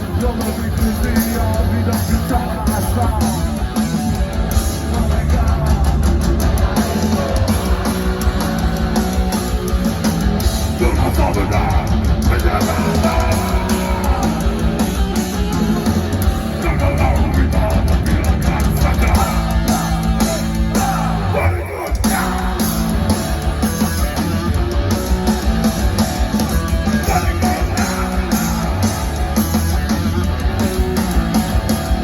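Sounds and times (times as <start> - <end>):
heavy metal band playing live: 0.0 - 32.0.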